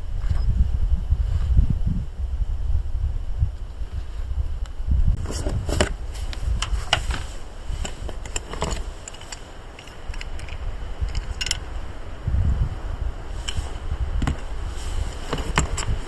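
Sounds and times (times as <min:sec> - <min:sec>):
wind on microphone: 0:00.0 - 0:16.0
camping gear clicks and knocks: 0:05.2 - 0:11.7, 0:13.3 - 0:16.0.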